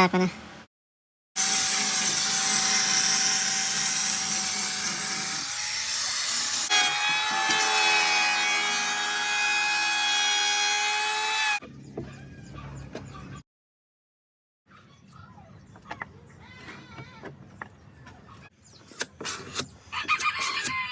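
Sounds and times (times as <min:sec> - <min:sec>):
power tool whining: 0:01.4 - 0:11.6.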